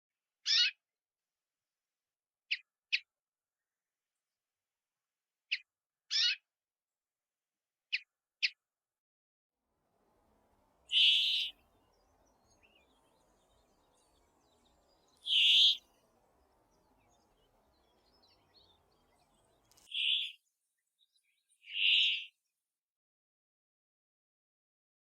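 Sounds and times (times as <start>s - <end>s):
bird calling: 10.9s - 20.4s, 21.7s - 22.3s.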